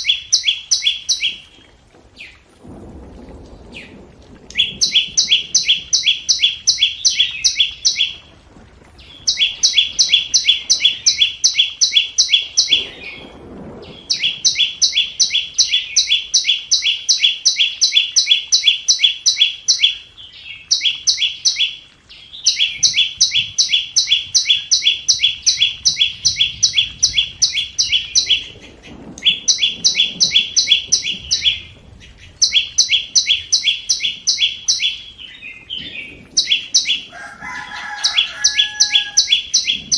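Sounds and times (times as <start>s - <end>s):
bird calling with clicking notes: 20.7s - 37.2s.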